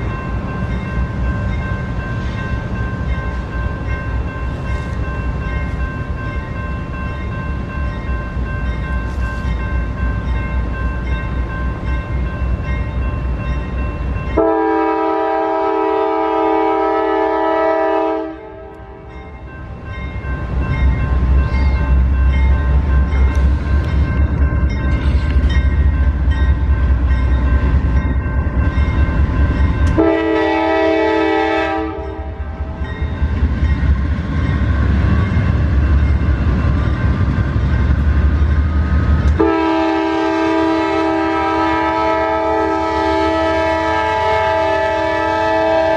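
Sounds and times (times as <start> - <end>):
passing train rumble: 0.0 - 45.9
train horn blasts: 14.4 - 19.1, 29.8 - 32.8, 39.3 - 45.9.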